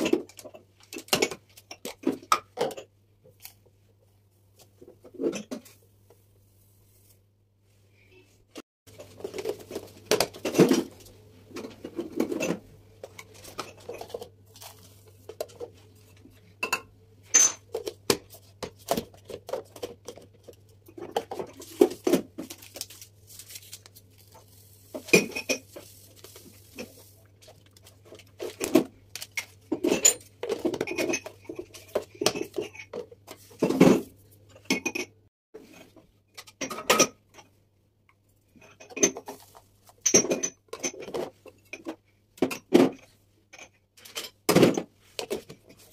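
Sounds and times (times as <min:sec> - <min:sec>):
shuffling handling noise: 0:13.0 - 0:16.4, 0:21.2 - 0:29.6, 0:39.2 - 0:40.0.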